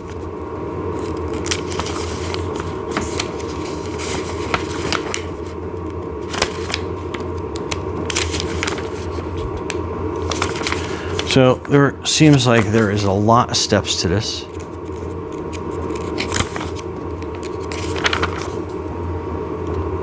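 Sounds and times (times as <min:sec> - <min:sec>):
steady low hum: 0:00.0 - 0:20.0
light clicks and rustles of paper: 0:01.0 - 0:05.5, 0:06.2 - 0:11.4, 0:14.5 - 0:18.8.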